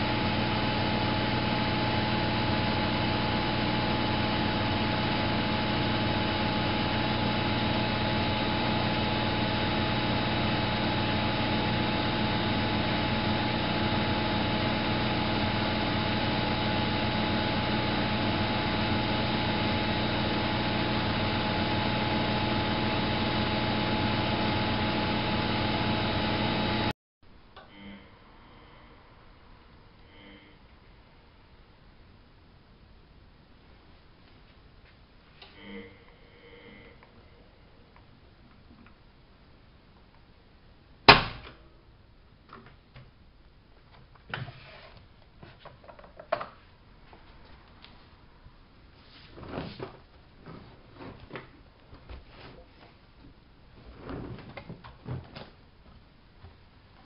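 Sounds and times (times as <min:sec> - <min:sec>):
washing machine running: 0:00.0 - 0:26.9, 0:53.9 - 0:55.3.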